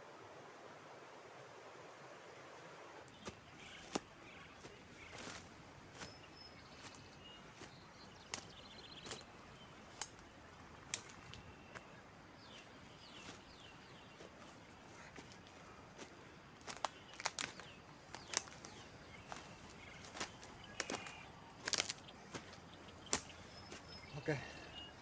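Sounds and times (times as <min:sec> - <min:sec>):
faint forest hiss: 0:00.0 - 0:25.0
faint bird chirps: 0:03.0 - 0:25.0
footsteps on forest floor: 0:03.1 - 0:25.0
small sticks snapping: 0:08.3 - 0:09.2, 0:09.9 - 0:10.2, 0:10.8 - 0:11.4, 0:16.6 - 0:18.7, 0:20.0 - 0:23.4.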